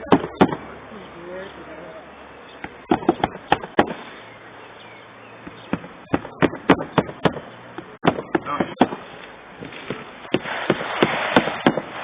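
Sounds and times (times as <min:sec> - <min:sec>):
hammer blows on wood: 0:09.6 - 0:12.0.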